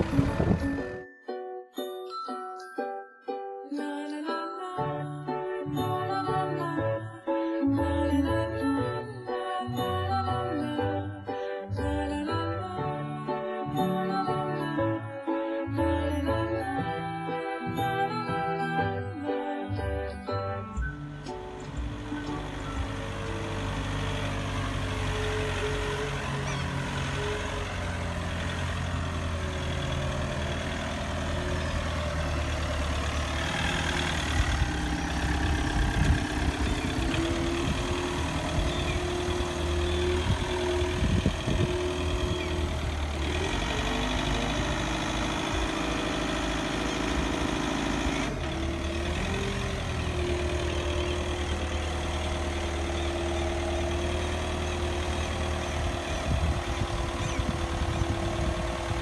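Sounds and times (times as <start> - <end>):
forklift engine running: 0.0 - 1.0, 19.7 - 59.0.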